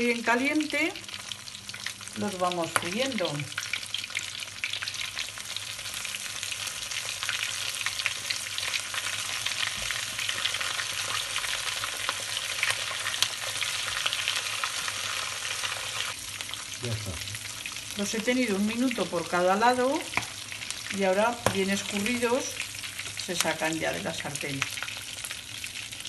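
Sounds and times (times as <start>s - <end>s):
frying in hot oil: 0.0s - 26.0s.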